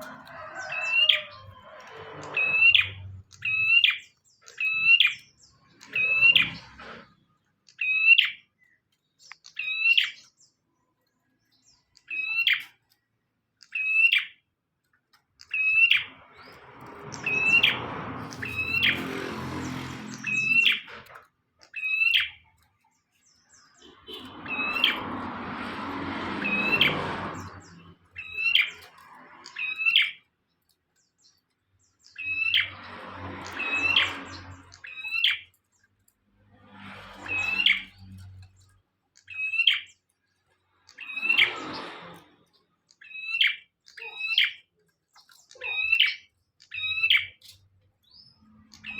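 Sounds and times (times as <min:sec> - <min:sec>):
bird sharp chirping: 0:02.2 - 0:06.7, 0:39.2 - 0:40.1, 0:42.9 - 0:48.9.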